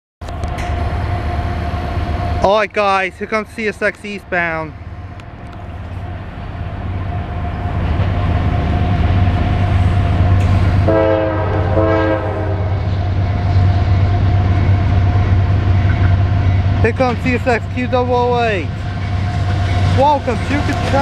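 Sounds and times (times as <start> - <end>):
diesel locomotives rumbling: 0.2 - 21.0
train air horn blasts: 10.8 - 12.8.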